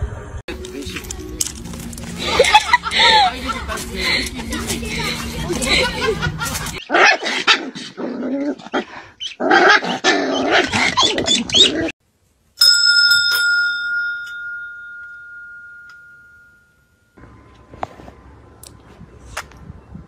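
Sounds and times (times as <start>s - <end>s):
doorbell chime: 12.6s - 17.2s.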